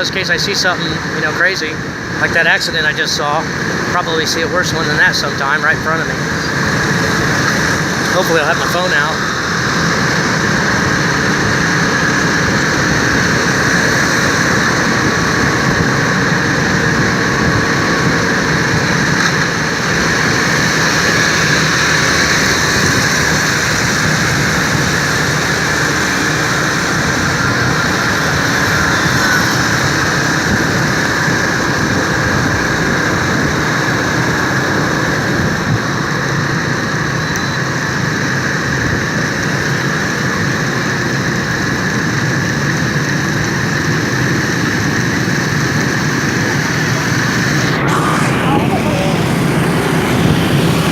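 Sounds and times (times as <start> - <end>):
motorbike engine: 0.0 - 50.9
wind rush: 6.1 - 37.2, 44.4 - 50.9.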